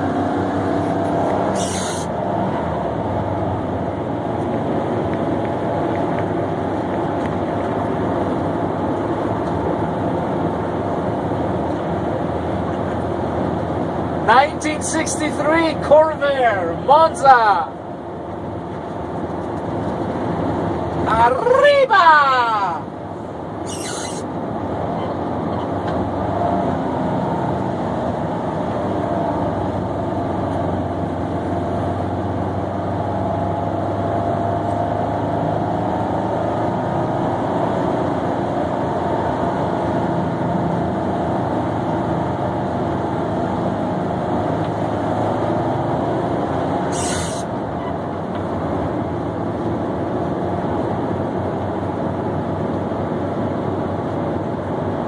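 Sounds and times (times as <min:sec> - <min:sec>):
car engine running: 0:00.0 - 0:35.3
road noise: 0:00.0 - 0:55.0.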